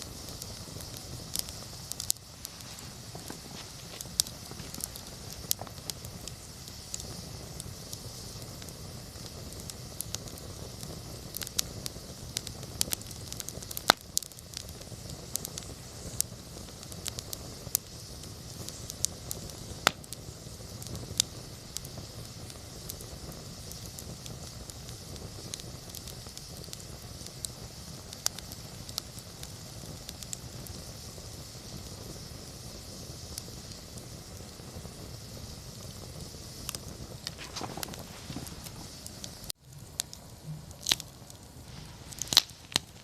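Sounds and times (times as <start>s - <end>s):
burning wood crackling: 0.0s - 43.0s
campfire flame rumble: 0.0s - 43.0s.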